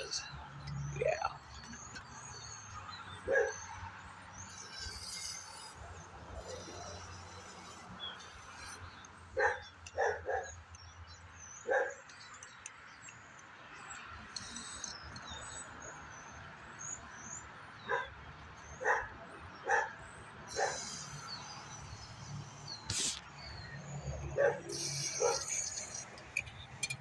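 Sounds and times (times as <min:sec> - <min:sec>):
dog barking: 0:03.3 - 0:03.6, 0:09.4 - 0:10.6, 0:11.6 - 0:12.0, 0:17.9 - 0:18.1, 0:18.8 - 0:20.0, 0:24.4 - 0:25.5
short hiss: 0:20.5 - 0:23.7, 0:24.7 - 0:26.9.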